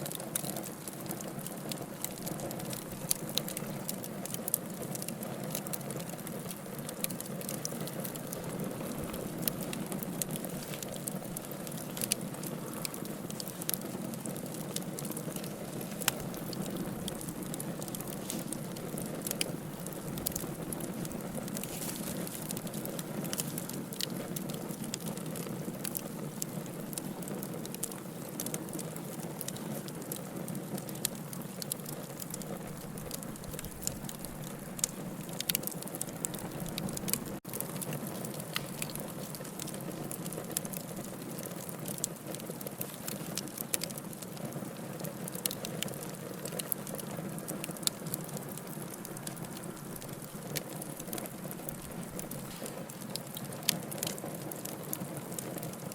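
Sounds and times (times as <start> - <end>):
fire crackling and popping: 0.0 - 55.9
fire hissing: 0.4 - 30.2, 47.5 - 54.4.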